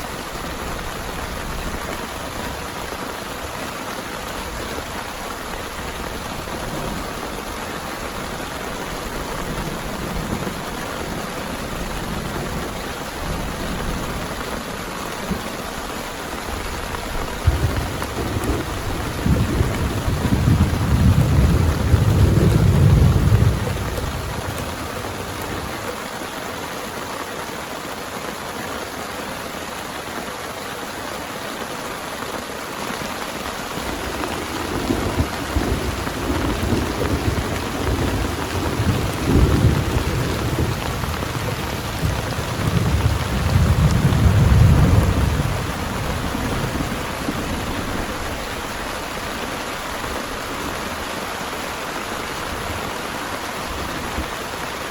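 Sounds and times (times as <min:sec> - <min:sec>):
heavy rain: 0:00.0 - 0:54.9
rolling thunder: 0:16.6 - 0:25.9, 0:33.8 - 0:48.8.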